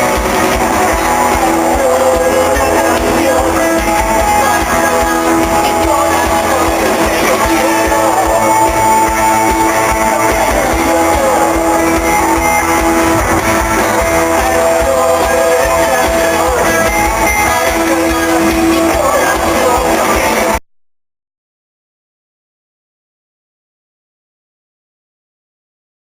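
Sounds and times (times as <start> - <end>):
guitar rock music: 0.0 - 20.6.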